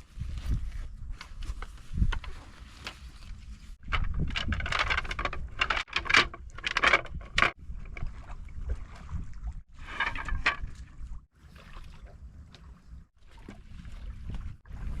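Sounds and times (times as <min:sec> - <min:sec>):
wind buffeting the microphone: 0:00.0 - 0:02.6, 0:03.3 - 0:05.7, 0:07.0 - 0:11.2, 0:12.8 - 0:15.0
splashing water: 0:07.5 - 0:15.0.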